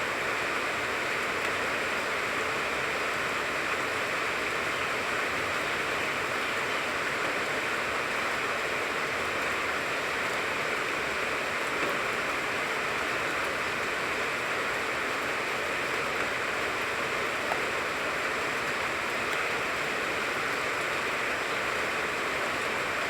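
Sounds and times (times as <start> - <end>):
rain falling on tree: 0.0 - 23.0.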